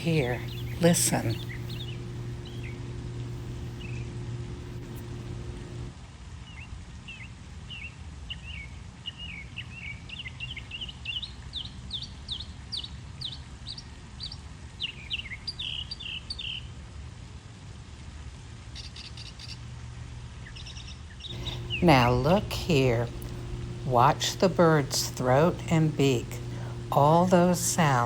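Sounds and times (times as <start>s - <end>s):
mockingbird singing: 0.0s - 4.2s.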